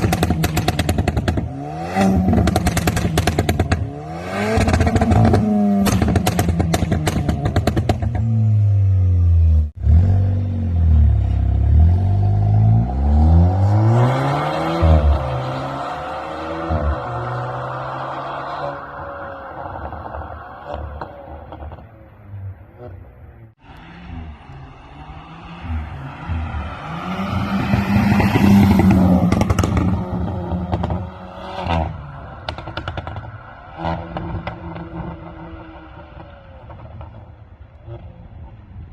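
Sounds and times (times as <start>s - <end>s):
exhaust pops and crackles: 0.0s - 1.5s, 2.3s - 3.9s, 4.6s - 8.3s, 28.8s - 30.0s, 32.4s - 33.4s
car engine revving: 0.0s - 21.9s, 22.6s - 38.1s.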